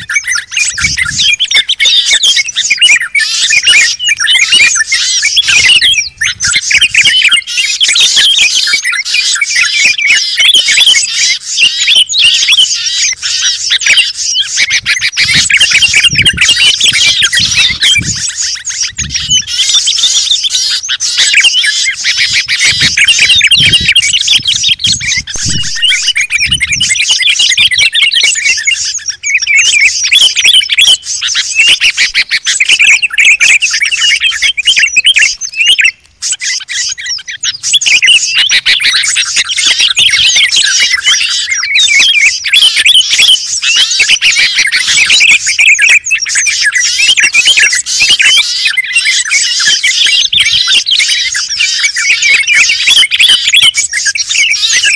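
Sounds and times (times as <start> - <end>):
small songbirds chirping: 0.0 - 54.9.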